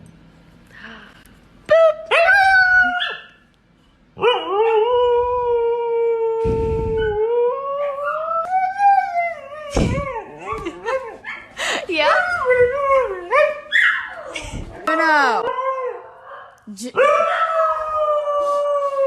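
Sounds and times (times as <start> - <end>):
dog howling: 4.2 - 11.3, 15.2 - 19.0
low rumble: 6.4 - 7.3.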